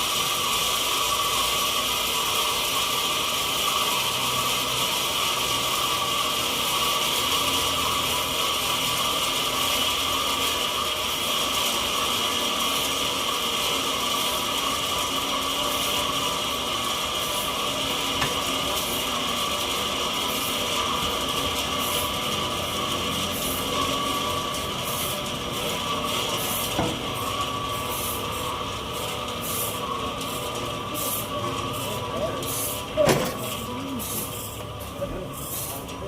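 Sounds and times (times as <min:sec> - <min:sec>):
sawmill saw whining: 0:00.0 - 0:36.0.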